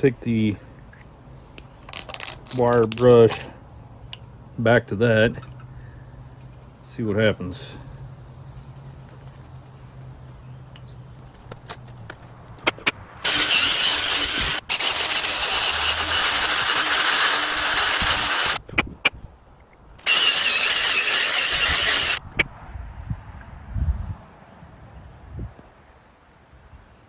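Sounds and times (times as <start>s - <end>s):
power wire brush scrubbing metal: 12.7s - 18.6s, 20.0s - 22.2s.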